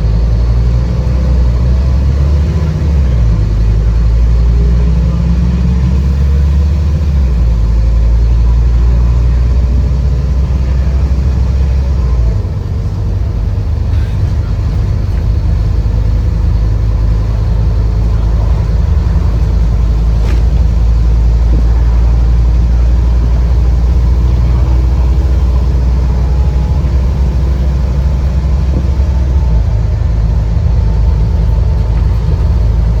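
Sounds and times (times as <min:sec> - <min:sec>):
bus diesel engine rumbling: 0:00.0 - 0:33.0.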